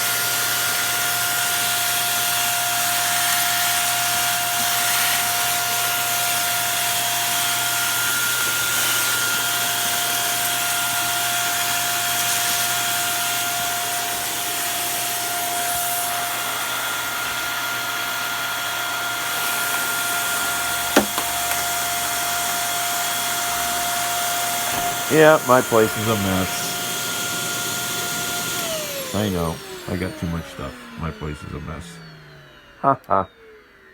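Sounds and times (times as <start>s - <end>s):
vacuum cleaner running: 0.0s - 33.9s
brief knock: 21.0s - 21.6s.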